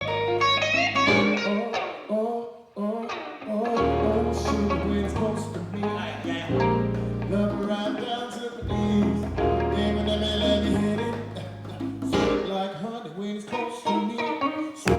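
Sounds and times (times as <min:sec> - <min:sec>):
held bass notes: 0:00.0 - 0:01.4, 0:03.8 - 0:07.7, 0:08.6 - 0:12.4
plucked guitar notes: 0:00.0 - 0:02.0, 0:03.7 - 0:08.0, 0:13.6 - 0:14.9.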